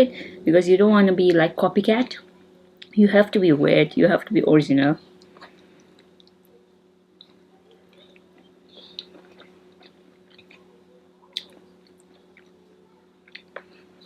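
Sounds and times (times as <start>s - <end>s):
faint low hum: 0.0s - 14.0s
person chewing: 7.2s - 12.6s, 13.2s - 13.9s.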